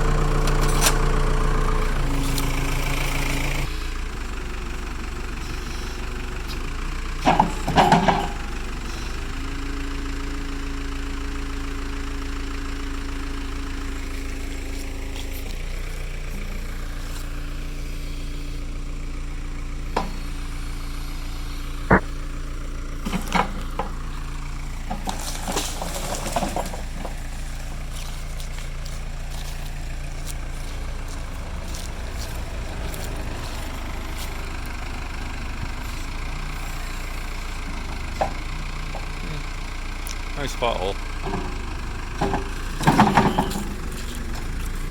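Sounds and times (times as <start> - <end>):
diesel engine running: 0.0 - 44.9
metal clanks and knocks: 7.2 - 8.7, 23.0 - 24.2, 24.8 - 29.6, 37.6 - 39.2, 41.1 - 44.9.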